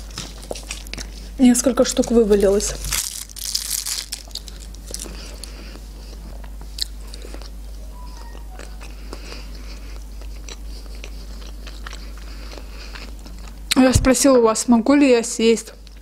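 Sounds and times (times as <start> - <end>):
person chewing: 0.0 - 1.4, 2.8 - 13.8.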